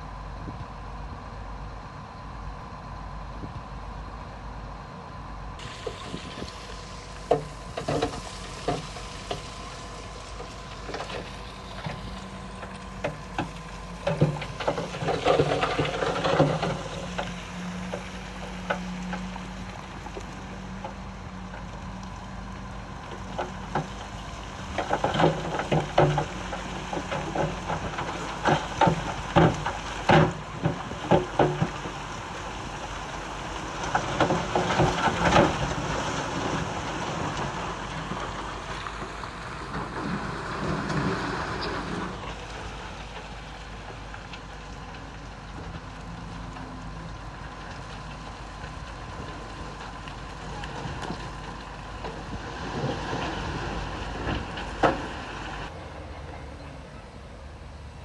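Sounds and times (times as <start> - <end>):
diesel engine running: 0.0 - 58.0
rushing hiss: 5.6 - 12.6.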